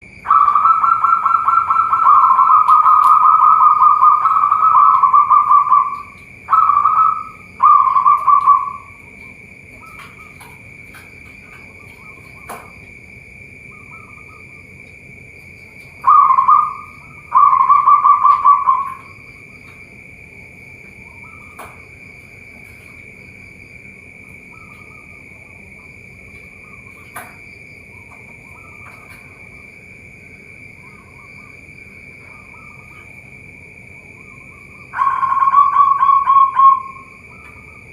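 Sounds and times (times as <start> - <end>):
steady high-pitched buzz: 0.0 - 37.9
dove cooing: 0.2 - 12.8, 15.6 - 19.8, 30.8 - 33.2, 34.1 - 37.9.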